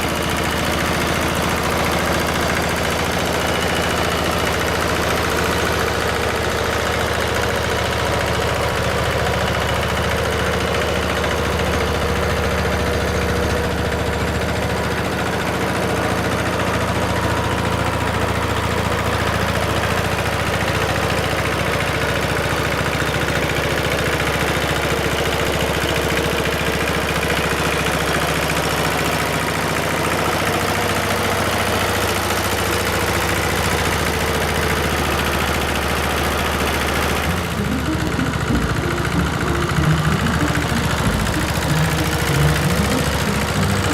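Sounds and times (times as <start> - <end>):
tractor engine running: 0.0 - 43.9.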